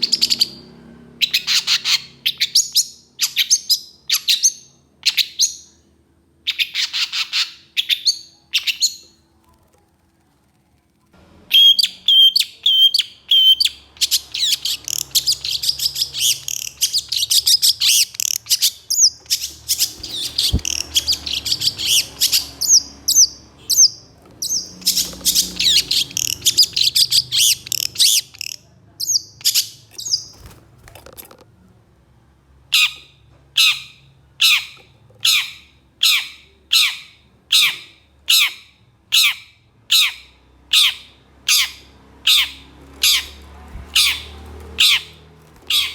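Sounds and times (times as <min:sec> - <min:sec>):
harsh bird calls: 0:00.0 - 0:09.3, 0:11.5 - 0:30.6, 0:32.7 - 0:45.9
shrike chattering song: 0:10.4 - 0:30.4.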